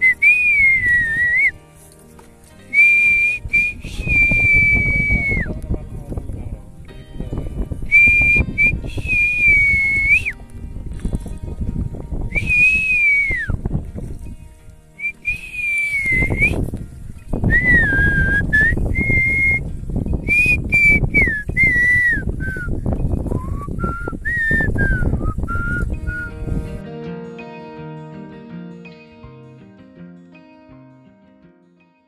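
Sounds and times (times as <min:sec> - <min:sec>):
person whistling a melody: 0:00.0 - 0:01.6, 0:02.7 - 0:05.6, 0:07.8 - 0:10.4, 0:12.3 - 0:13.6, 0:15.0 - 0:16.7, 0:17.4 - 0:26.6.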